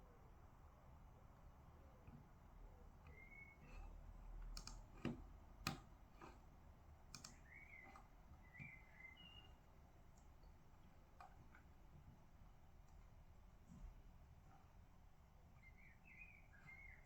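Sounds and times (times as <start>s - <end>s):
faint high chirps: 3.0s - 4.0s, 7.2s - 9.7s, 15.6s - 17.0s
desk clicks and taps: 4.6s - 6.4s.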